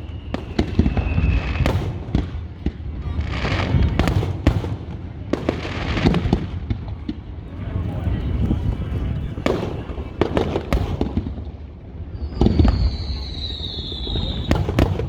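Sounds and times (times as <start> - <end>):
high whistle: 0.0 - 1.6, 12.1 - 14.9
fireworks bangs: 0.0 - 15.0
fireworks crackling: 0.0 - 15.0.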